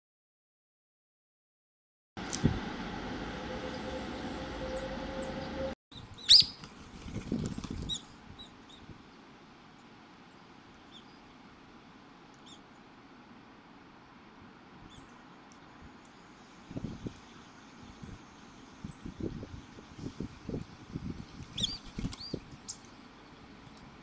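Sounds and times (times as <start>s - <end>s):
faint bird chirps: 3.6s - 6.6s.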